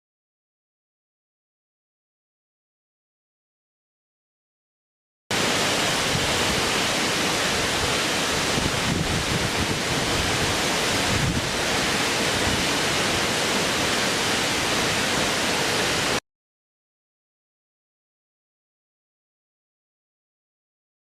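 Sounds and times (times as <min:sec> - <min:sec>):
steady rushing noise: 0:05.3 - 0:16.2.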